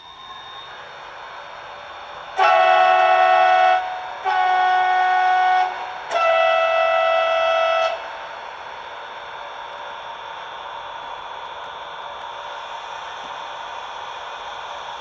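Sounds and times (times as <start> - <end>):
locomotive horn blasts: 2.4 - 8.1.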